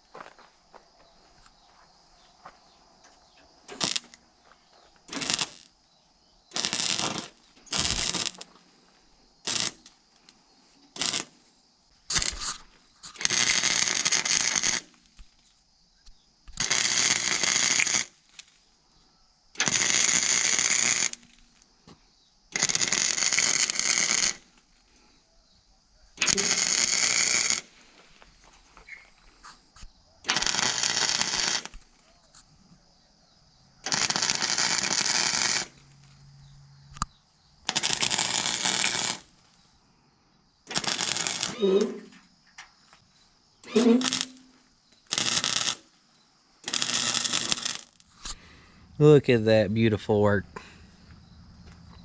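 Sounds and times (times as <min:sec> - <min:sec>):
crackling welding arc: 0:03.7 - 0:04.2, 0:05.1 - 0:05.8, 0:06.5 - 0:08.6, 0:09.4 - 0:10.0, 0:10.9 - 0:11.4, 0:12.1 - 0:15.4, 0:16.5 - 0:18.5, 0:19.6 - 0:21.4, 0:22.5 - 0:24.6, 0:26.2 - 0:27.8, 0:30.2 - 0:32.0, 0:33.8 - 0:36.0, 0:37.6 - 0:39.5, 0:40.7 - 0:42.3, 0:43.6 - 0:45.9, 0:46.6 - 0:48.4.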